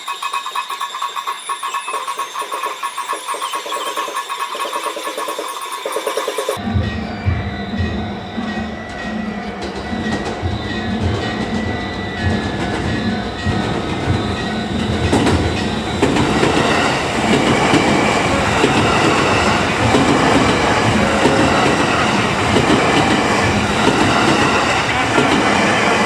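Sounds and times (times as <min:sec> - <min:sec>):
train wheels clattering over rail joints: 0:08.4 - 0:26.0.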